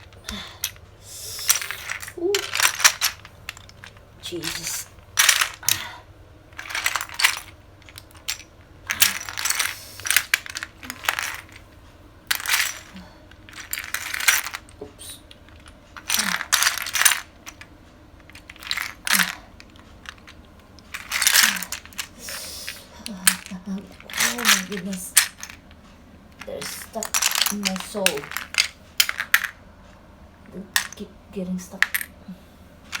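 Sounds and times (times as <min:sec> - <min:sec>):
plastic bricks clattering: 0:01.4 - 0:05.9, 0:06.5 - 0:11.7, 0:12.3 - 0:25.8, 0:26.4 - 0:29.6, 0:31.8 - 0:32.1.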